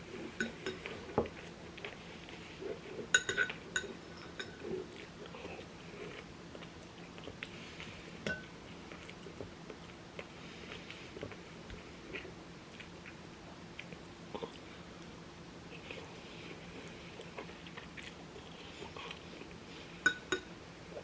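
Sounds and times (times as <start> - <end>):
person chewing food: 0.0 - 21.0
utensil clinking against dish: 3.2 - 4.6, 20.1 - 20.5.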